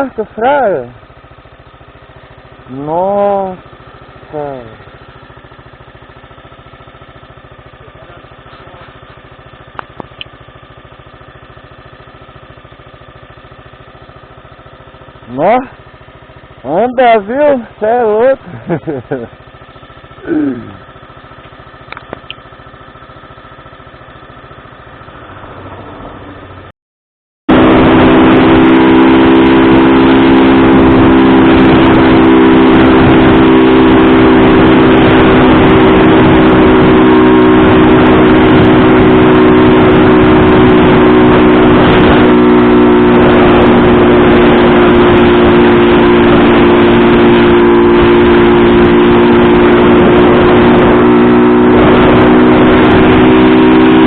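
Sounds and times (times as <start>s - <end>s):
loud distorted engine running: 0.0s - 26.7s, 27.5s - 54.0s
noisy rush: 27.5s - 54.0s.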